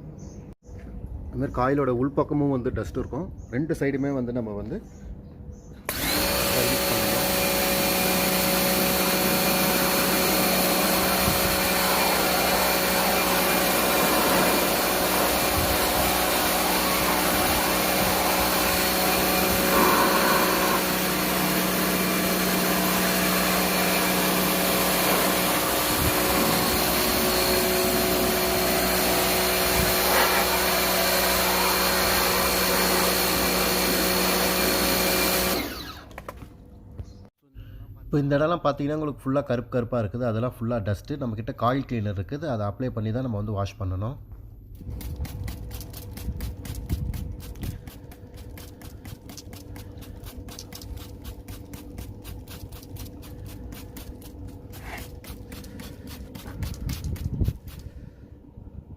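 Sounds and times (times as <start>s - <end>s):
electric motor humming and whining: 5.9s - 36.1s.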